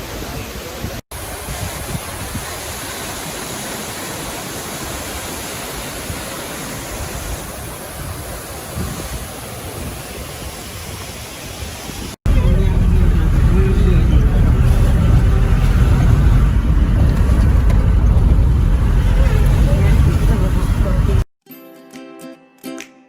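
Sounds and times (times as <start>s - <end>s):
waterfall rushing: 0.0s - 16.6s.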